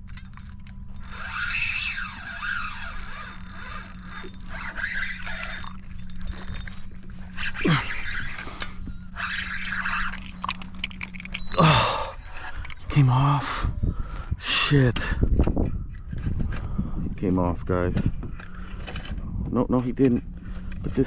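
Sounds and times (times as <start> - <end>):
fishing reel drag scraping: 0.0 - 11.4
electric trolling motor hum: 0.0 - 13.4.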